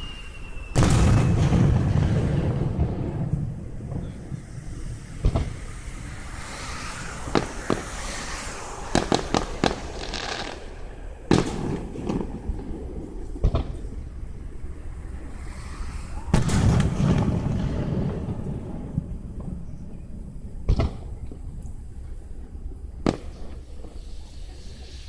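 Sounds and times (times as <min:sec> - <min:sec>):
fireworks cracks and booms: 0:00.2 - 0:06.0, 0:06.8 - 0:14.5, 0:15.7 - 0:20.0, 0:20.6 - 0:21.5, 0:23.0 - 0:24.0.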